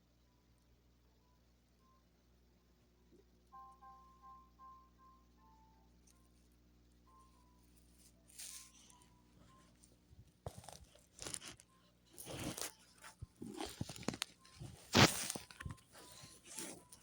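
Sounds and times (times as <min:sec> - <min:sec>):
crunching and rustling handling: 0:07.8 - 0:17.0.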